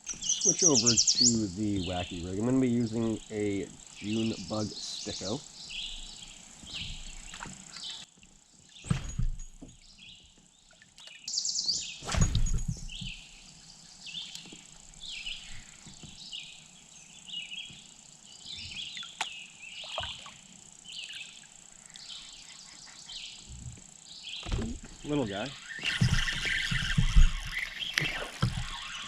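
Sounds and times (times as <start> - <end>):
high insect buzz: 0.0 - 29.0
songbirds singing: 0.0 - 29.0
loud sudden thumps: 8.8 - 9.7, 12.0 - 13.2, 24.4 - 25.2, 25.8 - 29.0.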